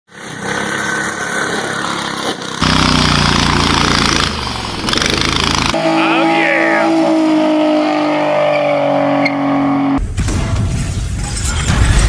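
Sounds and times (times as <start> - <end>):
small gas engine running: 0.1 - 7.8.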